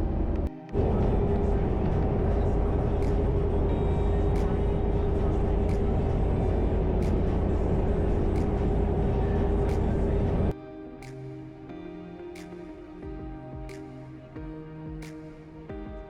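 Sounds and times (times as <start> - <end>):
engine and road rumble: 0.0 - 10.5
music: 0.0 - 16.0.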